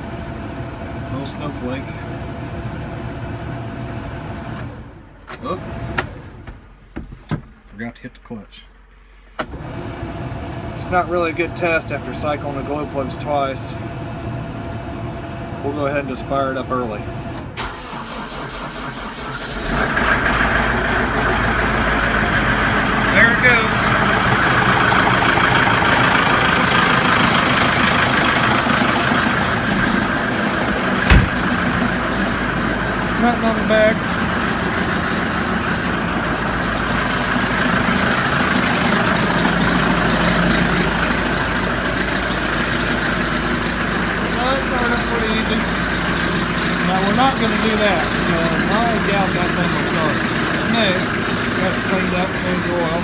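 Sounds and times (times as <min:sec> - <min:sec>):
diesel tractor engine running: 0:00.0 - 0:07.6, 0:08.8 - 0:53.0
engine cranking: 0:17.2 - 0:53.0.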